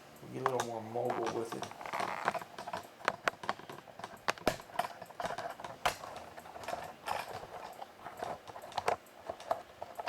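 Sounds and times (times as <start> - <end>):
camera handling clicks and knocks: 0.5 - 7.3.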